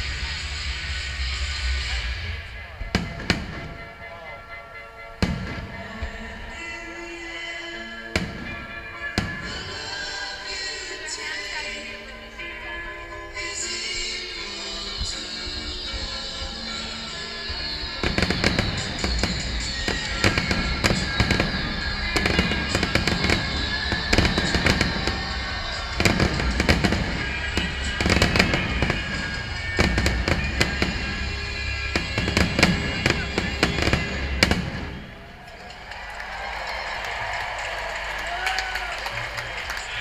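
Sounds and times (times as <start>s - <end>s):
music: 0.0s - 40.0s
fireworks bangs: 2.1s - 4.3s, 5.2s - 6.4s, 8.2s - 10.1s, 17.4s - 35.6s.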